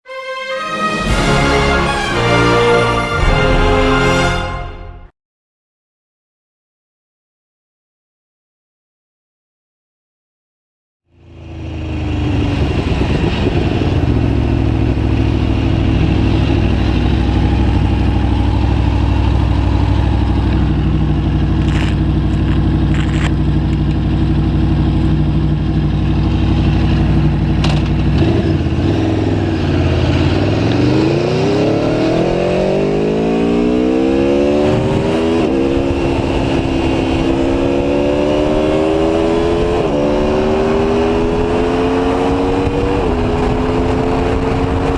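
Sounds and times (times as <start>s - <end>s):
motorcycle accelerating away: 11.2s - 44.9s
motorcycle engine idling: 13.9s - 29.8s.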